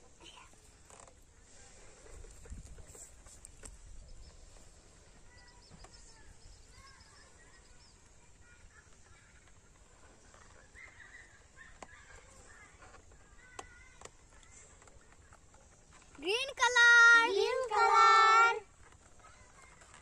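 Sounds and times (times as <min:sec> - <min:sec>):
small birds chirping: 0:02.8 - 0:18.6
faint clicks: 0:07.9 - 0:16.2.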